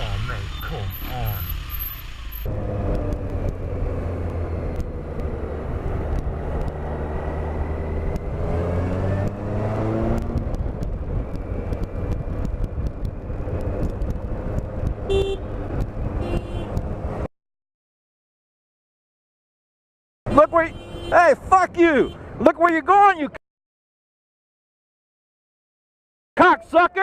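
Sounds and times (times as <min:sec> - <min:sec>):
motorcycle engine running: 0:00.0 - 0:08.5.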